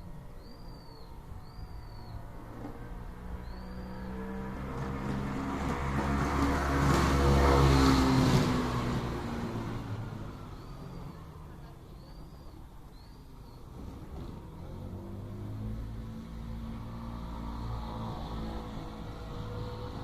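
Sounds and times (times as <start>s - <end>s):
motor vehicle passing by: 0.0s - 20.0s
bird chirps: 0.3s - 2.4s, 3.4s - 4.4s, 10.5s - 13.8s.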